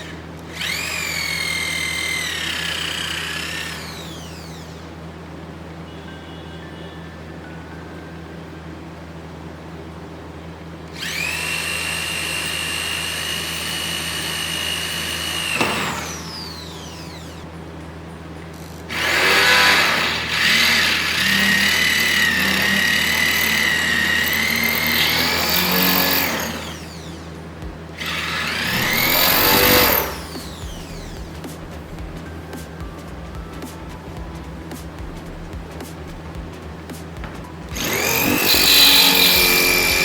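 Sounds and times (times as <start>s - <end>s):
electric drill whining: 0.0s - 5.0s, 10.9s - 17.7s, 18.6s - 31.6s, 37.6s - 40.0s.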